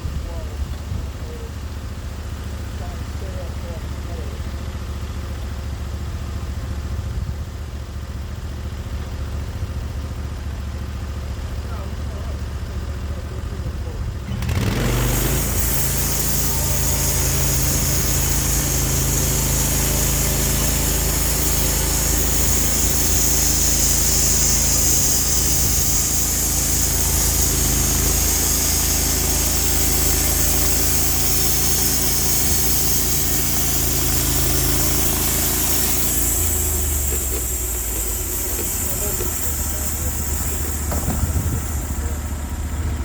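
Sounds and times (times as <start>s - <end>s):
sawmill engine running: 0.0s - 43.0s
saw cutting log with hiss: 14.3s - 43.0s.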